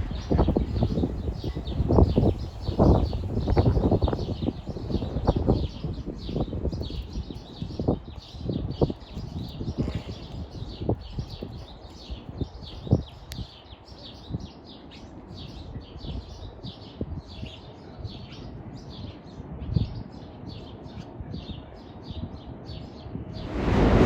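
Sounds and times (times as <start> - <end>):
small birds chirping: 0.0 - 23.8
low thumps: 23.4 - 24.0.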